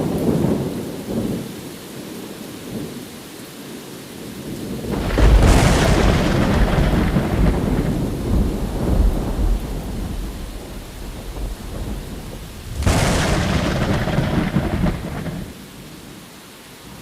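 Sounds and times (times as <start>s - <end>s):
sharp thunderclap: 4.8s - 15.7s
thunder rumble: 4.8s - 16.0s.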